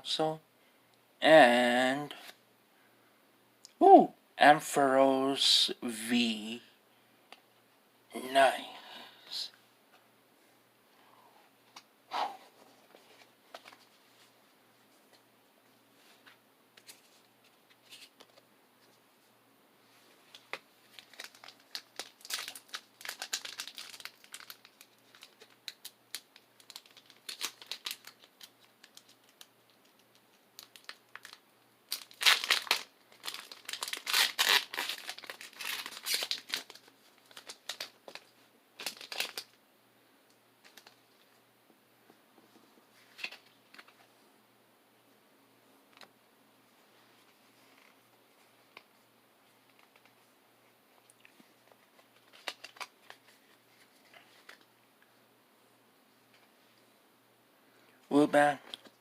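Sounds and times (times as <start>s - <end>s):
foil wrapper crinkling and tearing: 20.3s - 39.6s, 40.6s - 41.0s, 52.0s - 54.7s.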